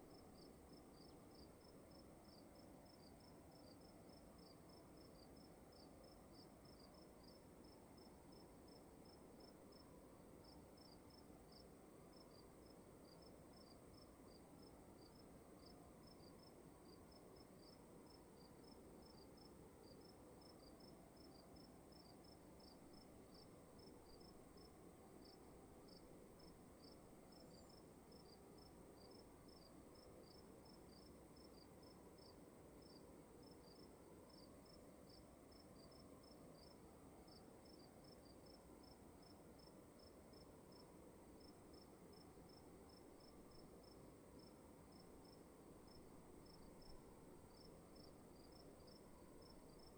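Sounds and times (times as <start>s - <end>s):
crickets chirping: 0.0s - 49.9s
low hiss: 0.0s - 49.9s.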